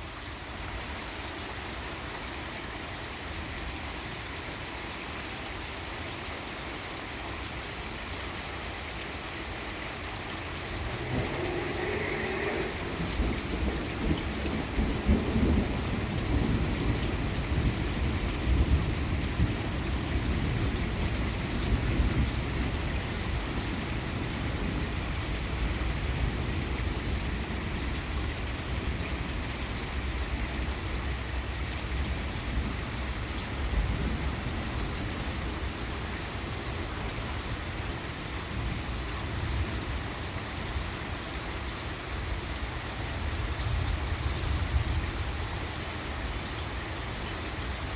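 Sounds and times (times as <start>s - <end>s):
steady rain: 0.0s - 47.9s
thunder rumbling: 10.5s - 19.5s.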